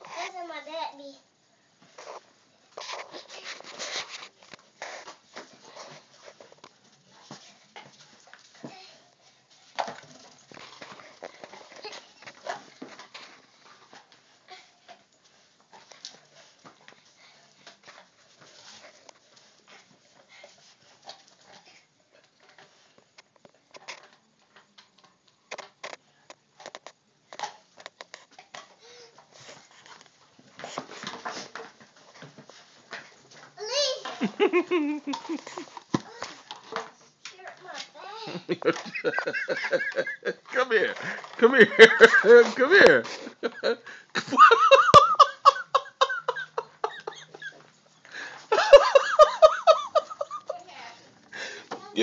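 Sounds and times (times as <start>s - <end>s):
dogs scuffling at play: 1.8s - 43.8s
person laughing hard: 34.2s - 35.7s, 38.4s - 42.3s, 43.4s - 47.6s, 48.4s - 50.6s.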